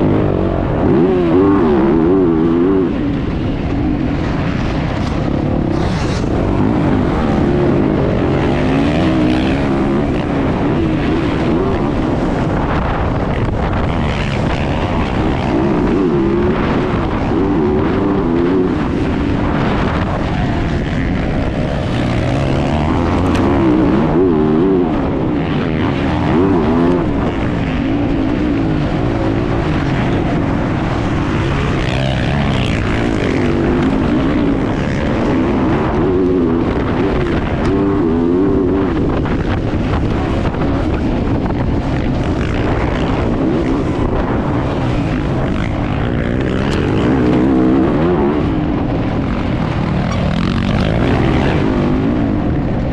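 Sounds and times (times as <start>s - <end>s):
motocross bike engine revving: 0.0s - 52.9s.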